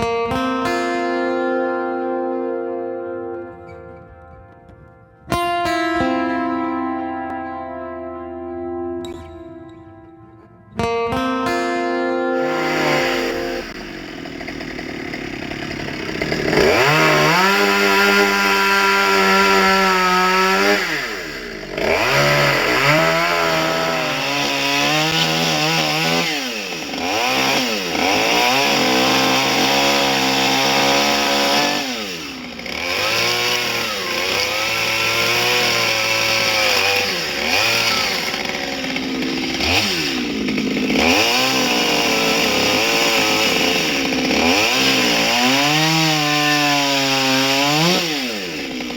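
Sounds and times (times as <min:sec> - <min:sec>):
chainsaw cutting wood: 0:00.0 - 0:07.4, 0:08.7 - 0:48.9.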